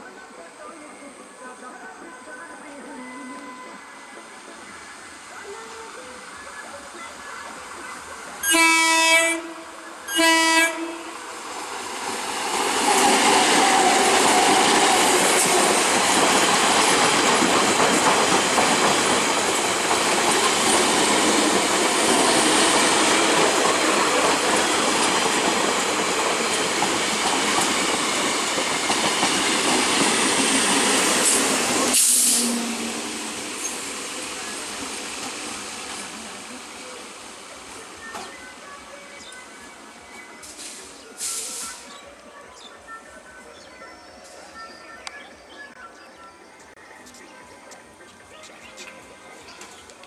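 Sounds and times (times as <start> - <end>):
train horn blasts: 8.4 - 11.2
train wheels clattering on rails: 12.2 - 32.7.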